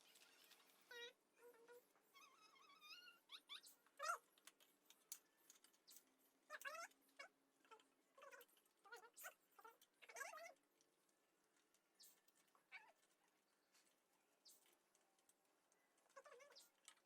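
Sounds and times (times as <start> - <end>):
faint animal cries: 0.8 - 4.2, 12.0 - 13.1, 16.0 - 17.0.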